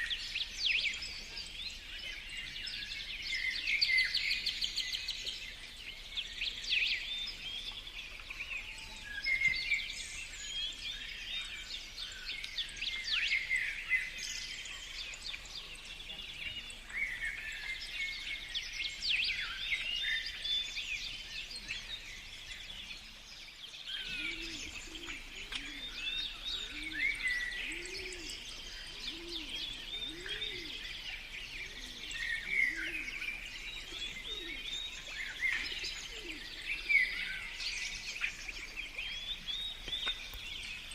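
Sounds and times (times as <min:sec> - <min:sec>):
birds chirping and whistling: 0:16.4 - 0:40.9.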